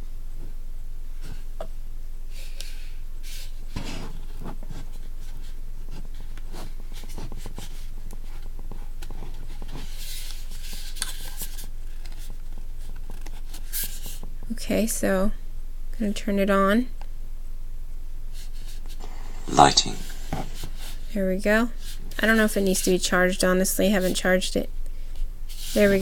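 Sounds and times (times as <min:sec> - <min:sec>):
low electrical hum: 0:00.0 - 0:26.0
rubbing and scratchy rustle: 0:03.2 - 0:14.4, 0:25.1 - 0:26.0.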